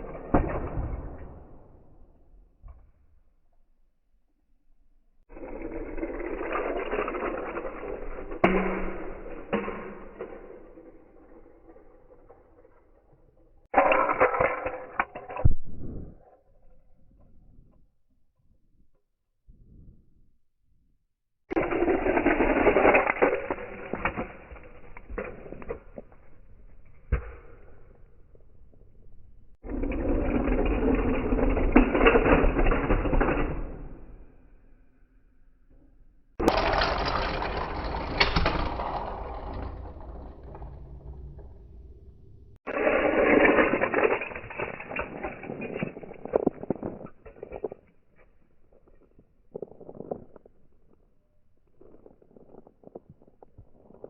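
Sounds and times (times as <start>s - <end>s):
toy cars rattling rumble: 5.3s - 15.5s, 21.5s - 26.2s, 29.6s - 34.2s, 36.4s - 47.8s
toy car crash impacts: 36.4s - 41.4s
faint low rumble: 36.5s - 42.8s.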